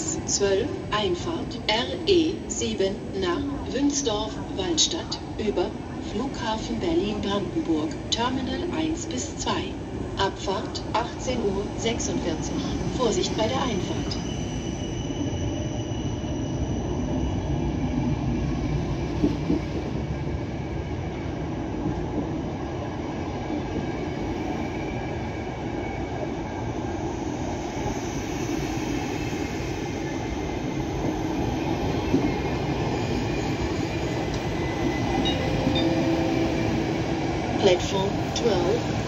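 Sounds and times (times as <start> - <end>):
train wheels rumbling on rails: 0.0 - 39.0
faint high wheel squeal: 13.7 - 17.7.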